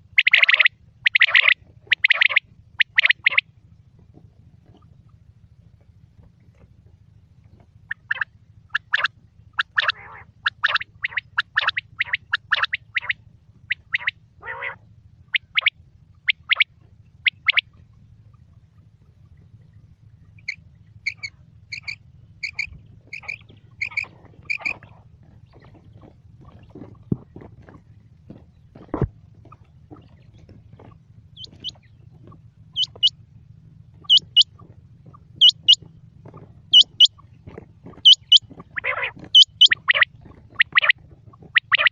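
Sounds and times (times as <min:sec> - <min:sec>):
quail calling: 0:00.0 - 0:03.5, 0:07.5 - 0:17.9, 0:20.3 - 0:27.1, 0:28.8 - 0:33.2, 0:33.9 - 0:41.9
steady low hum: 0:00.0 - 0:41.9.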